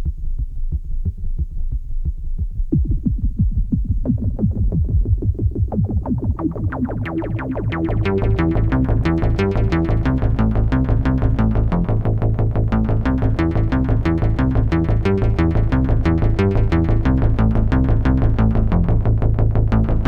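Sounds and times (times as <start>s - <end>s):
low synth bass: 0.0s - 20.0s
synthesizer sequenced pattern: 2.7s - 12.1s, 12.7s - 19.0s.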